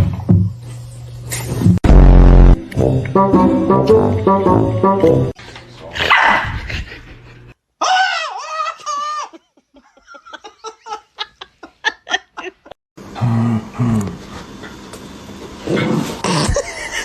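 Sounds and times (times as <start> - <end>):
brief music: 1.9 - 5.4
dog yipping: 6.1 - 6.4.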